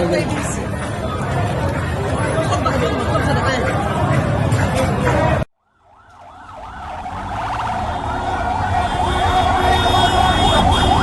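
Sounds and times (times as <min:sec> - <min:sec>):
emergency siren warbling: 0:05.6 - 0:11.0
low vehicle rumble: 0:05.6 - 0:11.0.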